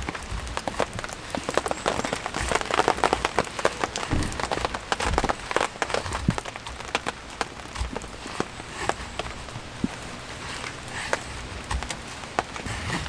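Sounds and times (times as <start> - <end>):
rain falling: 0.0 - 13.0
raindrops tapping: 0.0 - 13.0
heavy low thuds: 4.0 - 6.4.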